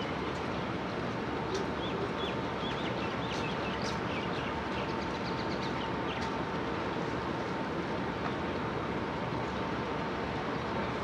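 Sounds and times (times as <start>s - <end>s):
faint constant hum: 0.0s - 11.0s
outdoor background rumble: 0.0s - 11.0s
small birds chirping: 1.7s - 6.4s.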